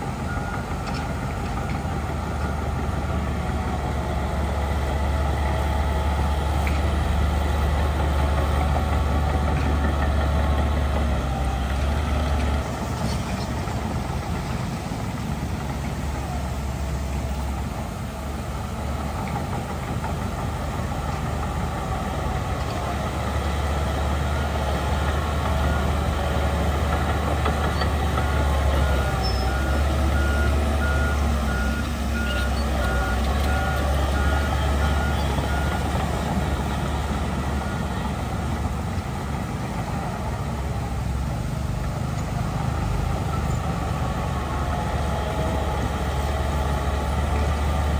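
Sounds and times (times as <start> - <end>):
diesel earthmoving machinery rumbling: 0.0 - 47.9
reversing alarm beeping: 28.2 - 36.9.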